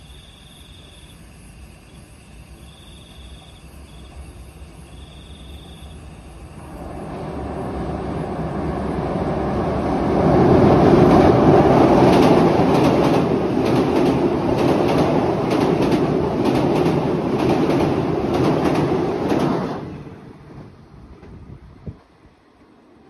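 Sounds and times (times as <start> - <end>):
train rumbling on bridge: 1.9 - 23.0
wheels clacking over rail joints: 10.2 - 21.4.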